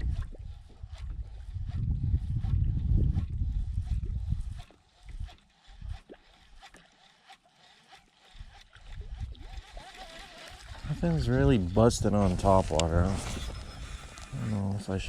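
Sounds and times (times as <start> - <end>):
wind buffeting microphone: 0.0 - 6.0, 8.4 - 10.0, 10.6 - 15.0.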